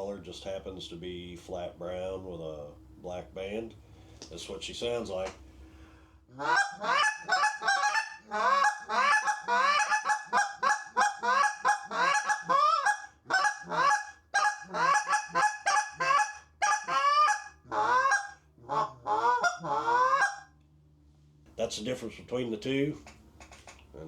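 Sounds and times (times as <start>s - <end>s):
goose call clucks and honks: 6.3s - 20.6s.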